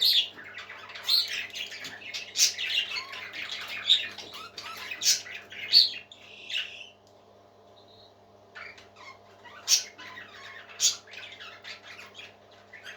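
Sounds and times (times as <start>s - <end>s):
parrot chicks chirping: 0.0s - 12.9s
loud squawk: 8.6s - 12.9s.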